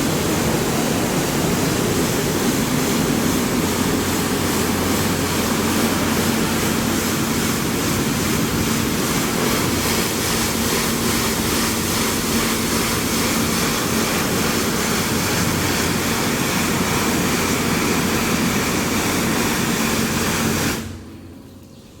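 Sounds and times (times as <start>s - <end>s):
high-pressure water spraying: 0.0s - 21.1s
pump humming: 0.0s - 22.0s.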